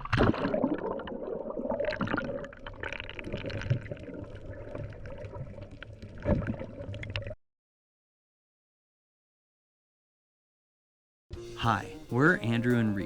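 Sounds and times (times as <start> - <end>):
sea water gurgling and sloshing: 0.0 - 7.4.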